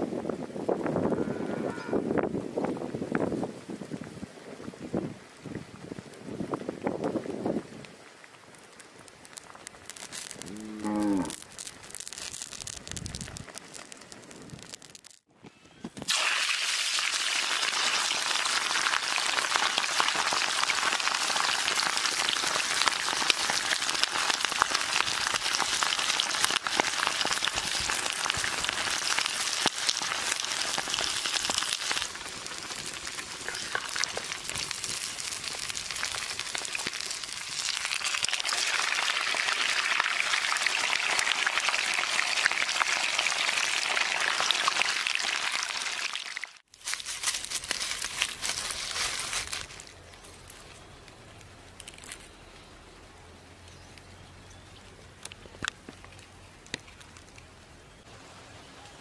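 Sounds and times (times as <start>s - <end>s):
meat sizzling in hot oil: 9.3s - 10.6s, 11.3s - 15.3s, 16.1s - 49.6s.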